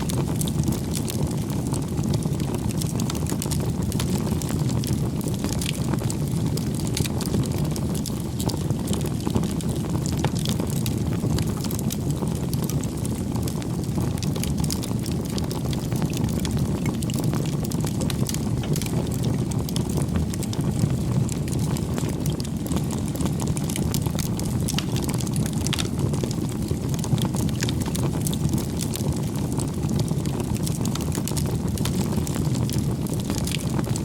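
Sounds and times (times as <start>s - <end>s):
burning wood crackling and popping: 0.0s - 34.0s
campfire flames rumbling: 0.0s - 34.0s.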